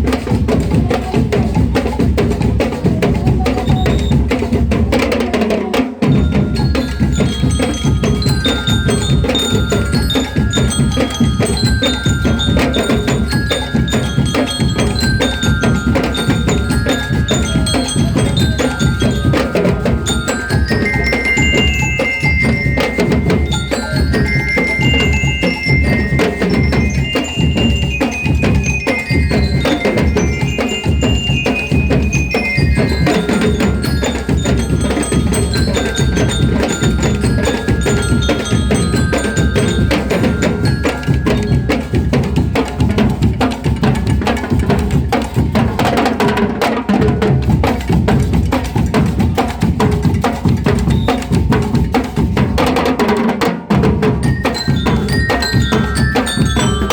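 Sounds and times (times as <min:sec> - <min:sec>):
steady drumming: 0:00.0 - 0:56.9
glockenspiel melody: 0:06.0 - 0:44.6, 0:50.6 - 0:52.3, 0:54.0 - 0:56.9.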